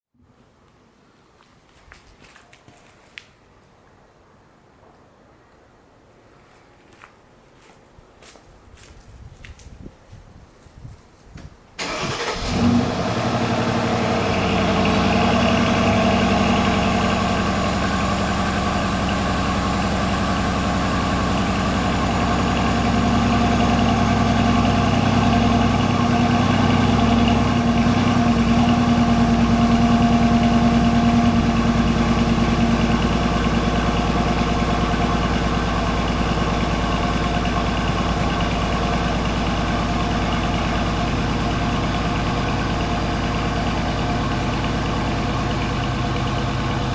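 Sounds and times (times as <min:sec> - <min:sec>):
car engine cold start and idle: 0:11.8 - 0:46.9.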